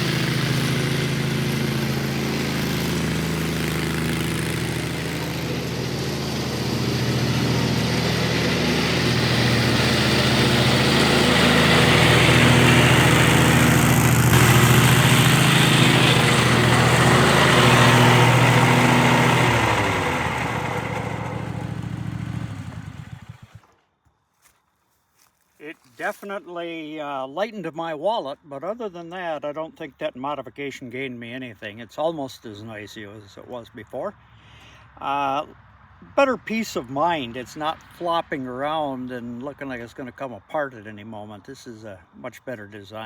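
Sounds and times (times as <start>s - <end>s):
lawn mower engine hum: 0.0s - 23.8s
loud mower blade whirring: 0.0s - 23.8s.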